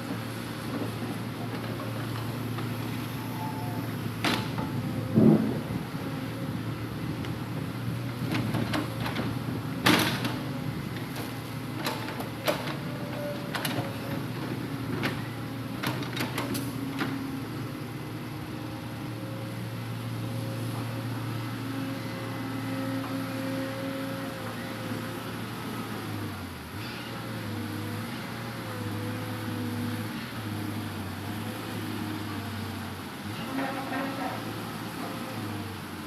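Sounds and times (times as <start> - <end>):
excavator engine running: 0.0 - 26.8.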